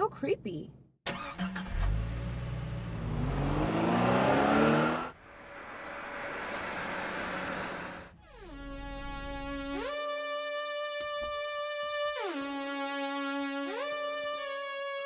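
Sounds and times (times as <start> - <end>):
road noise: 1.1 - 8.2
truck engine accelerating: 1.1 - 9.8.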